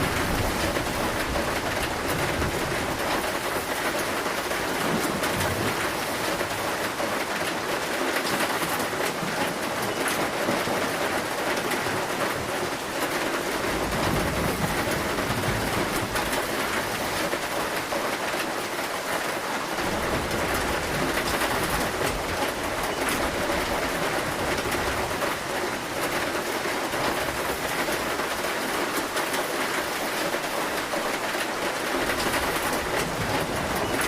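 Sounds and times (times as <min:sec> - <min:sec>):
distant thunder rumble: 0:00.0 - 0:06.7, 0:13.6 - 0:17.9, 0:19.8 - 0:25.4
heavy rain on a metal roof: 0:00.0 - 0:34.0.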